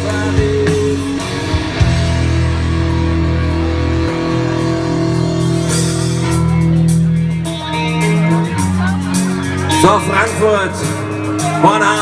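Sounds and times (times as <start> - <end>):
bass guitar: 0.0 - 12.0
electric guitar chords: 0.0 - 12.0.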